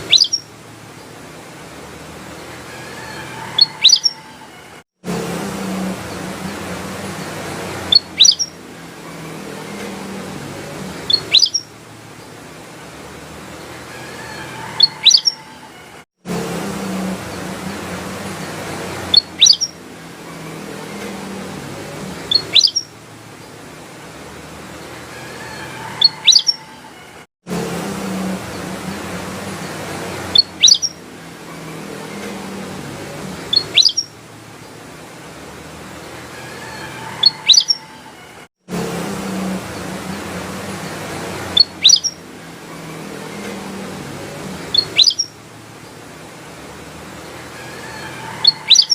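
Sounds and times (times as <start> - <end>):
bulbul chirping call: 0.0 - 0.5, 3.6 - 4.3, 7.9 - 8.6, 11.1 - 11.7, 14.8 - 15.4, 19.1 - 19.8, 22.3 - 22.9, 26.1 - 26.6, 30.4 - 31.0, 33.5 - 34.1, 37.3 - 37.8, 41.6 - 42.2, 44.7 - 45.3, 48.4 - 48.9
bulbul singing: 0.0 - 1.2, 3.4 - 4.5, 6.0 - 12.3, 14.7 - 15.6, 17.2 - 23.6, 26.0 - 26.8, 28.4 - 34.2, 37.2 - 37.8, 39.7 - 45.4, 48.4 - 48.9.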